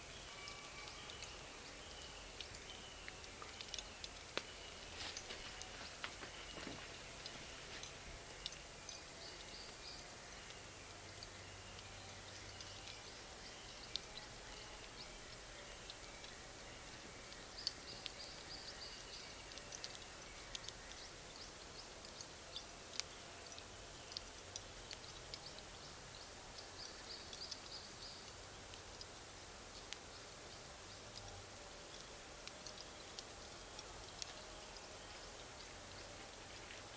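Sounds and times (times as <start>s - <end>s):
bonfire crackling: 1.0s - 11.3s
charcoal popping: 2.4s - 8.6s.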